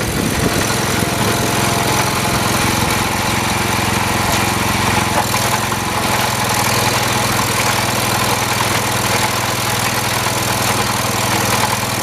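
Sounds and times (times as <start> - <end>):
lawn tractor engine running: 0.0 - 12.0.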